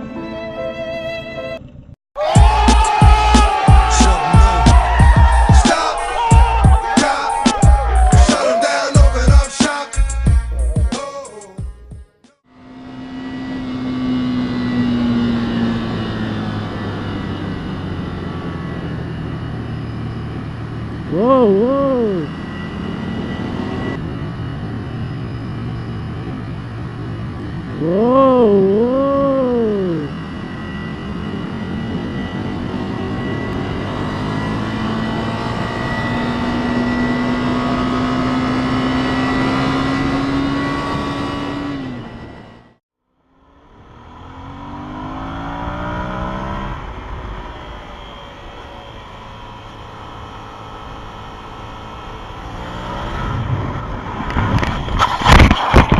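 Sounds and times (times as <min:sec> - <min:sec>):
motorcycle engine accelerating: 0:01.4 - 0:08.4, 0:11.8 - 0:55.9
wind and road noise: 0:12.5 - 0:55.9.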